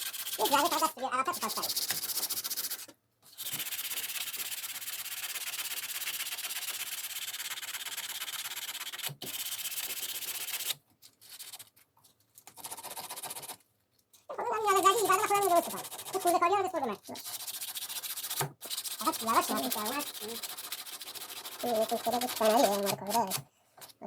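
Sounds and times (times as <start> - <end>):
abrasive sanding: 17.1 - 22.9.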